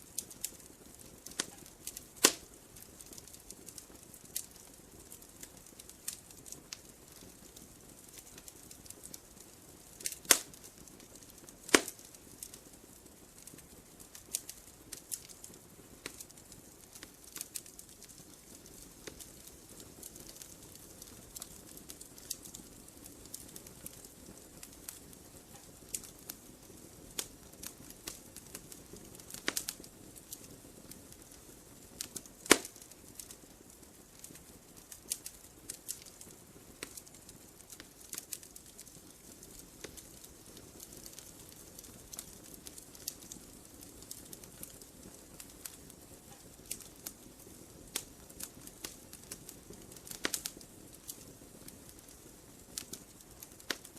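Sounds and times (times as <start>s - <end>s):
soft rush of flame: 0.0s - 53.9s
wood fire crackling: 0.0s - 53.9s
loud pop of fire: 1.2s - 3.2s, 10.0s - 10.6s, 11.3s - 12.5s, 29.0s - 30.4s, 32.0s - 33.3s.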